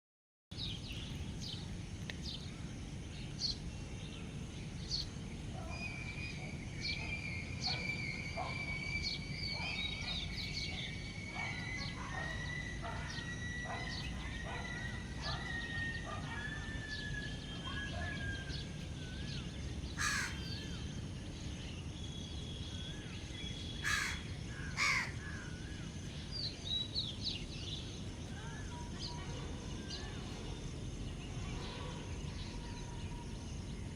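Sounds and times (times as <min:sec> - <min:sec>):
birds chirping and whistling: 0:04.8 - 0:20.9
harsh bird calls: 0:04.9 - 0:21.0, 0:22.5 - 0:27.5.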